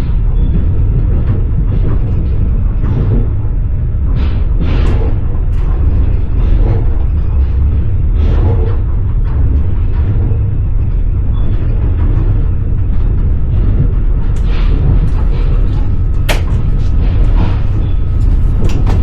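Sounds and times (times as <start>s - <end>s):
train wheels clattering on rails: 0.0s - 19.0s
sharp clicks and knocks: 14.4s - 17.4s.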